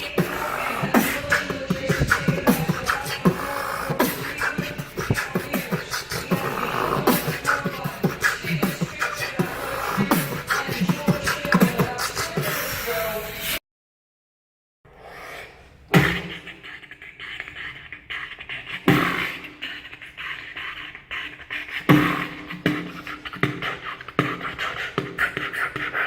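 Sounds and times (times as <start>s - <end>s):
beatboxing: 0.0s - 13.6s, 14.9s - 26.0s.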